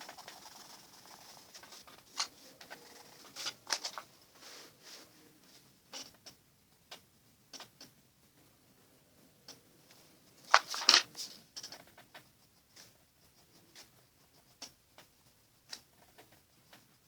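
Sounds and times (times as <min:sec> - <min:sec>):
pencil scratching on paper: 0:00.0 - 0:04.8.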